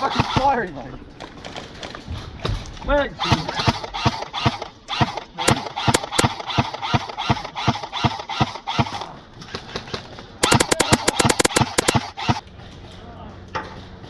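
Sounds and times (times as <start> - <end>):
airsoft gun shots: 3.3 - 9.0, 10.4 - 12.4.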